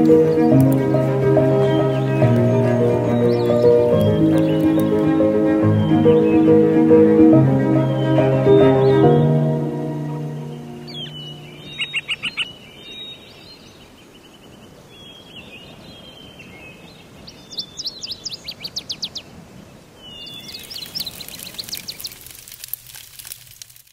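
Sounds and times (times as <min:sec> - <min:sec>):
string music: 0:00.0 - 0:12.0
small birds chirping: 0:00.0 - 0:22.5
faint outdoor hiss: 0:00.0 - 0:23.9.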